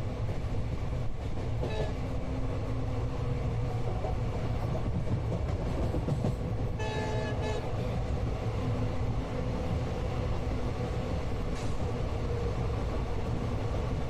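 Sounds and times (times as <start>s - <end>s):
train rumble inside coach: 0.0s - 14.0s
train horn toot: 1.6s - 2.1s, 6.8s - 8.0s.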